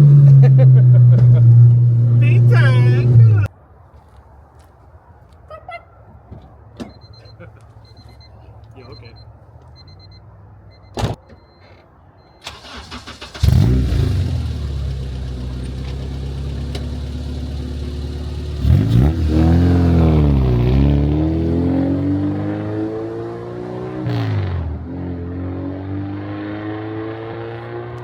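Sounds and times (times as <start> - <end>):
car engine revving: 0.0 - 3.5, 12.5 - 28.0.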